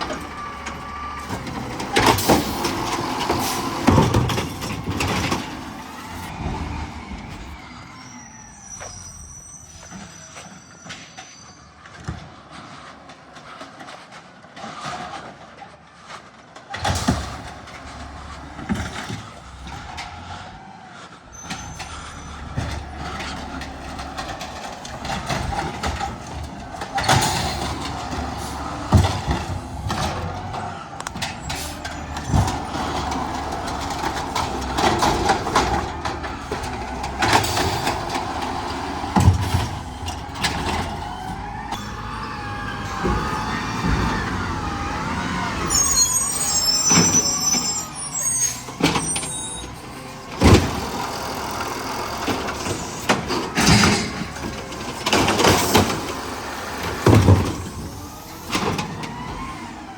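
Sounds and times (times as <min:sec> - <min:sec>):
garbage truck engine rumbling: 0:00.0 - 0:59.9
clanks and knocks: 0:21.4 - 0:45.1, 0:48.7 - 0:59.7.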